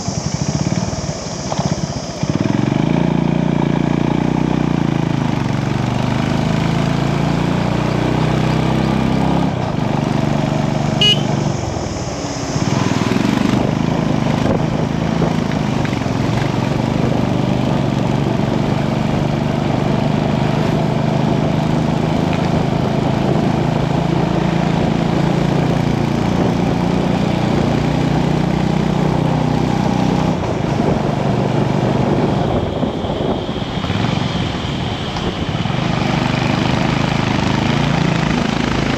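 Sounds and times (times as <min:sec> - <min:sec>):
motorcycle engine accelerating: 0:00.0 - 0:38.9
brief high tone: 0:10.9 - 0:12.9.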